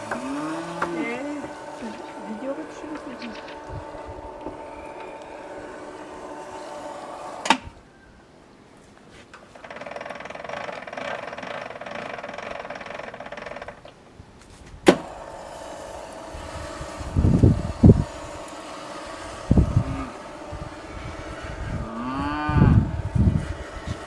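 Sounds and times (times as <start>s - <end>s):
electric motor running: 0.0s - 7.9s, 14.9s - 24.0s.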